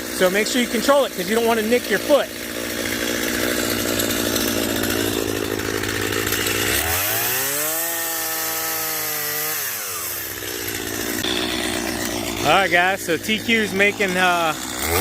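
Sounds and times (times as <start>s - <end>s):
chainsaw cutting log: 0.0s - 15.0s.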